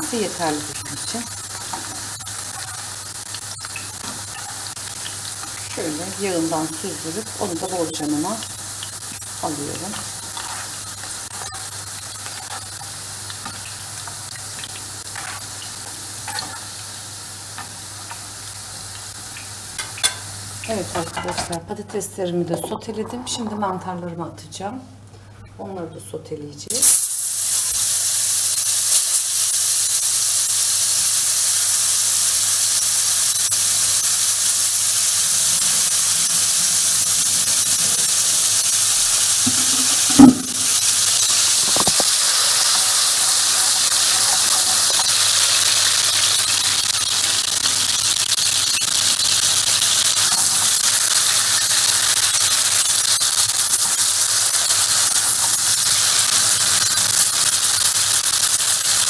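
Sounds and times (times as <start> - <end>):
mushrooms sizzling in a pan: 0.0 - 21.9, 26.7 - 59.0
sharp knock: 39.5 - 40.7.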